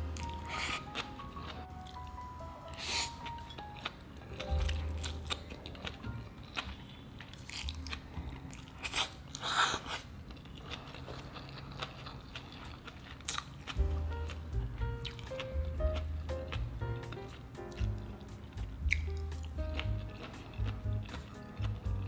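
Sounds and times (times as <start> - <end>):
soft background music: 0.0 - 8.6, 13.6 - 22.0
person chewing with crunches: 2.7 - 22.0.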